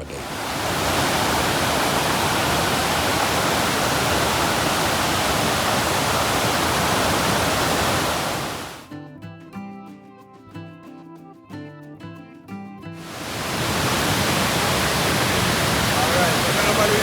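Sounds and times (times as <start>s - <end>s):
waterfall rushing: 0.0s - 8.9s, 13.0s - 17.0s
music: 8.8s - 13.1s.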